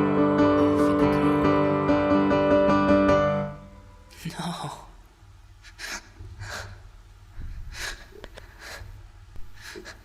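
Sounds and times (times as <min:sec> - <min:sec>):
person gasping breaths: 0:05.6 - 0:10.0.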